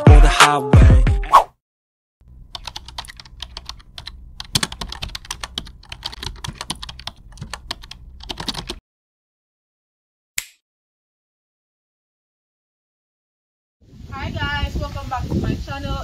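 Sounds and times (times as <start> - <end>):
rapid clicking and tapping: 2.5 - 8.8.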